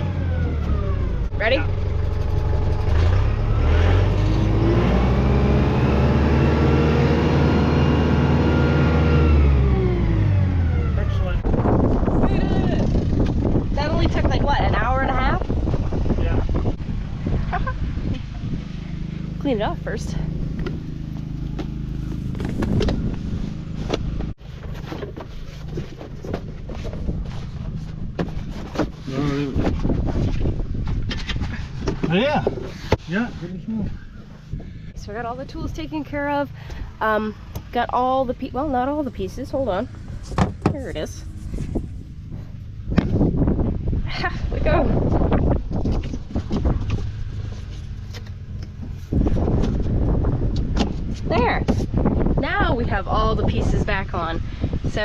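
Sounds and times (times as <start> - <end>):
tractor engine running: 0.0 - 32.4, 34.0 - 44.0, 44.6 - 54.2.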